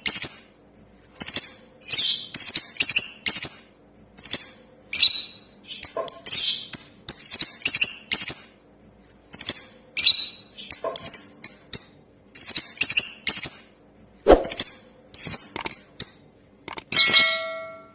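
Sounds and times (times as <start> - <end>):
lovebird shrill chirps: 14.3 - 14.7.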